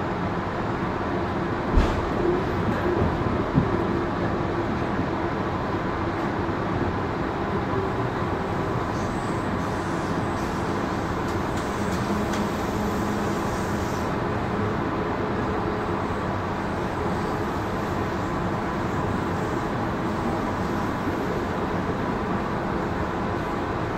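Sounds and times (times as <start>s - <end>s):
train wheels rumbling on rails: 0.0s - 23.9s.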